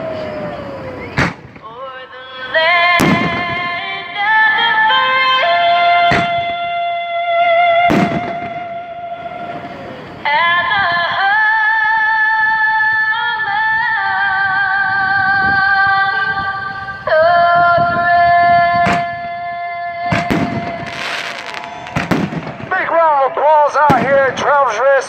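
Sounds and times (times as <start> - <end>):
firework bang: 1.1 - 1.7, 3.0 - 3.8, 6.1 - 6.6, 7.8 - 8.8, 20.1 - 22.8, 23.9 - 24.4
person singing anthem: 1.6 - 21.6.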